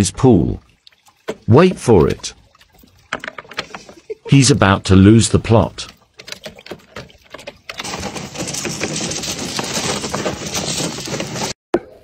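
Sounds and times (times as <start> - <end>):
water splashing: 0.0 - 12.0
claws scraping plastic: 6.2 - 11.6.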